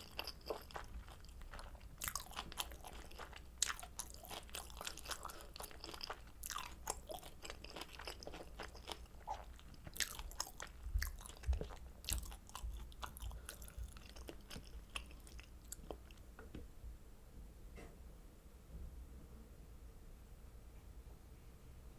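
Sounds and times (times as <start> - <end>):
person chewing wetly: 0.0 - 16.3.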